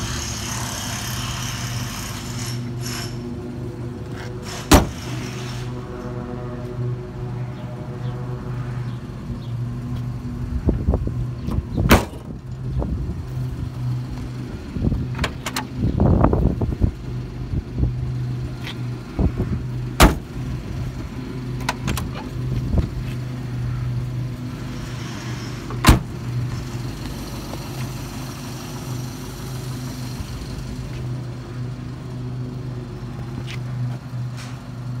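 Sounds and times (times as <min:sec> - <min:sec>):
car doors and trunk clunking: 0:04.0 - 0:05.2, 0:11.4 - 0:12.6, 0:14.9 - 0:15.8, 0:19.9 - 0:20.4, 0:21.6 - 0:23.0, 0:25.6 - 0:26.2
car engine idling: 0:09.4 - 0:34.0.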